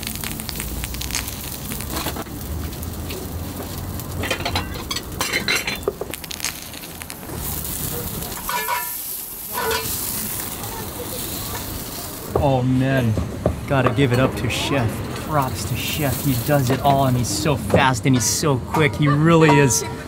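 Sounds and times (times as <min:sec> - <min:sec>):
food sizzling in a pan: 0:00.0 - 0:12.4, 0:15.2 - 0:17.7
pans and utensils clinking: 0:04.2 - 0:06.0, 0:08.1 - 0:10.0.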